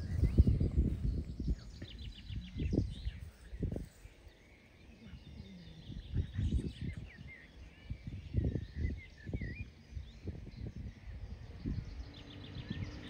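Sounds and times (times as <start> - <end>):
low thumps and rumble: 0.0 - 3.9
small birds chirping: 0.0 - 13.0.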